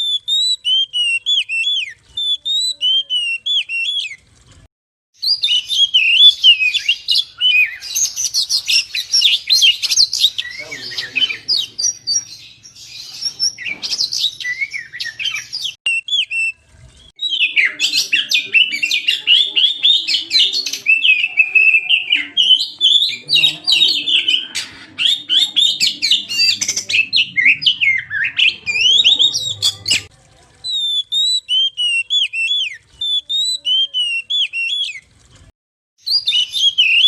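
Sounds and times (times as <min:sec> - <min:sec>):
bird singing whistles and chatter: 0:00.0 - 0:04.2, 0:05.2 - 0:35.0, 0:36.0 - 0:37.0.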